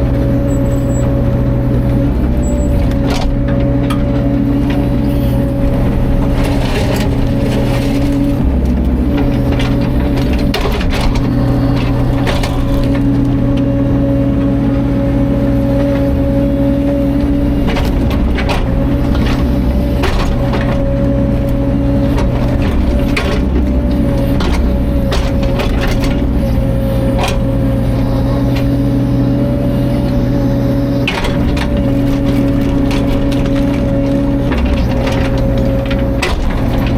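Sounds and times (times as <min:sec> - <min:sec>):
excavator diesel engine running: 0:00.0 - 0:36.9
sharp cracks and knocks: 0:31.1 - 0:36.9.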